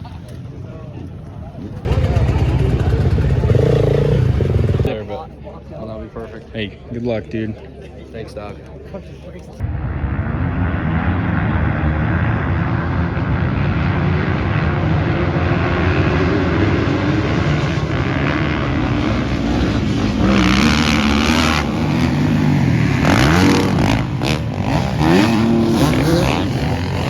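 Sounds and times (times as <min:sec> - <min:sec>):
motocross bikes racing: 0:01.6 - 0:05.2, 0:09.6 - 0:27.0
single bike revving past: 0:01.8 - 0:04.9, 0:10.0 - 0:27.0.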